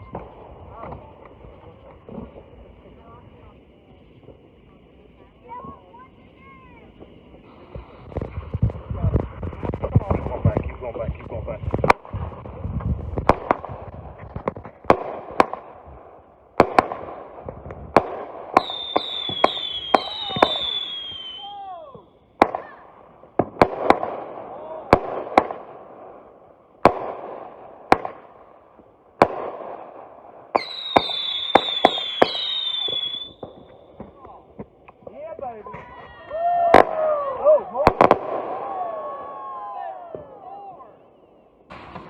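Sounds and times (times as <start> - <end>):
falling firework whistles: 5.1 - 25.8, 29.2 - 34.3, 35.8 - 42.0
firework cake shots and bangs: 6.9 - 35.2, 37.8 - 38.9, 41.6 - 42.0.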